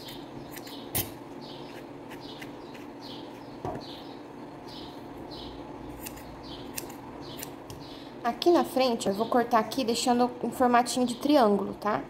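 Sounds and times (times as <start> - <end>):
small bird chirping: 0.0 - 8.1.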